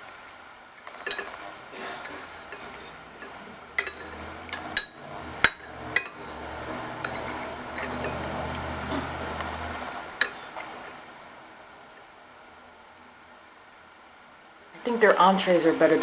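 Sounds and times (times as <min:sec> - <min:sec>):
low steady hum: 0:00.0 - 0:16.0
spoon clinking against bowl: 0:02.0 - 0:06.4, 0:07.0 - 0:08.4.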